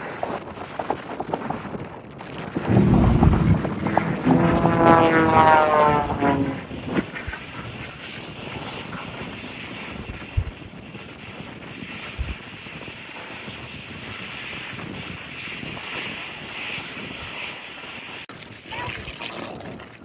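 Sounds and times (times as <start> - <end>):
propeller airplane flying past: 2.3 - 8.7.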